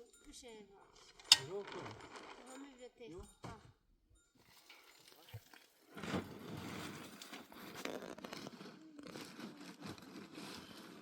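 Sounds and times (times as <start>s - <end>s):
soft crunching and rustling: 1.0s - 3.6s, 4.4s - 11.0s.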